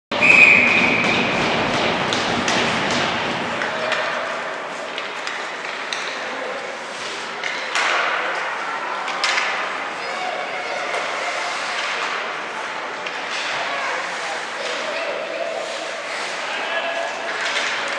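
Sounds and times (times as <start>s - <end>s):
crowd and rink noise: 0.1s - 17.9s
hockey sticks and puck clacking: 0.1s - 17.9s
puck banging against boards: 0.2s - 6.4s, 7.4s - 8.4s.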